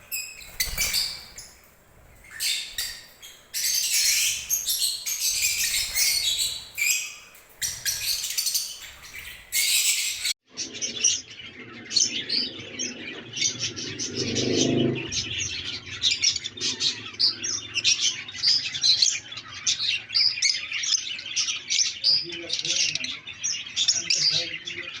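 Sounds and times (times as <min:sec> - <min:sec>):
parrots chattering: 0:00.0 - 0:10.4.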